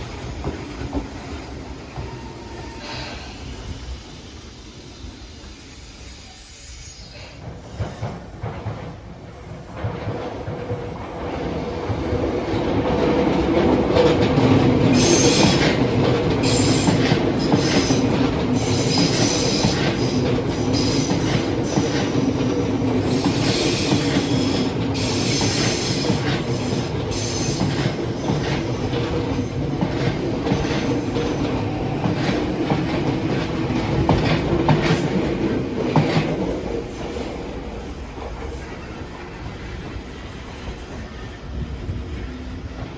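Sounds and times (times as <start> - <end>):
train rail rumble: 0.0 - 42.9
train wheels squealing: 1.2 - 8.2, 14.9 - 15.8, 16.4 - 22.4, 23.1 - 32.1, 38.4 - 42.3.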